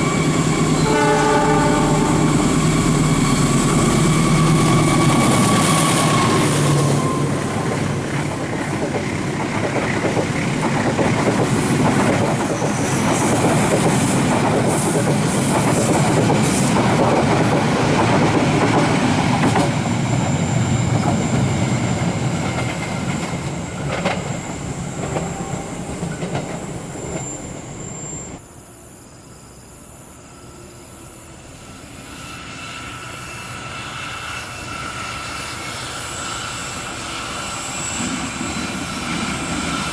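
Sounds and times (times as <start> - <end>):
high wheel squeal: 0.0 - 9.5, 19.8 - 28.4, 30.3 - 39.9
train wheels rumbling on rails: 0.0 - 28.4, 30.2 - 39.9.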